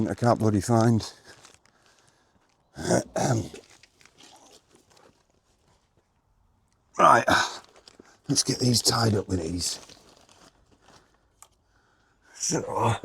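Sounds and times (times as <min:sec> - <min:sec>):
man clearing throat: 0:02.8 - 0:03.6, 0:07.0 - 0:07.7.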